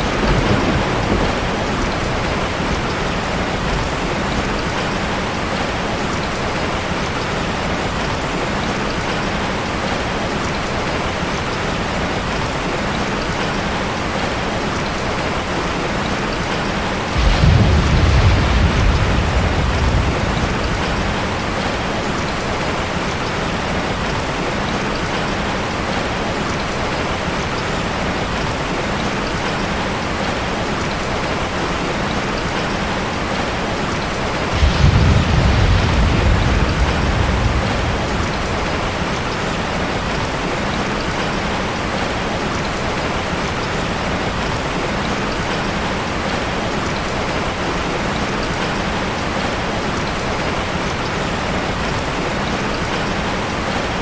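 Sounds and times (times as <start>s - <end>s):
low rumble of thunder: 0.0s - 8.6s, 15.8s - 26.0s, 32.6s - 42.8s
heavy rain falling: 0.0s - 54.0s.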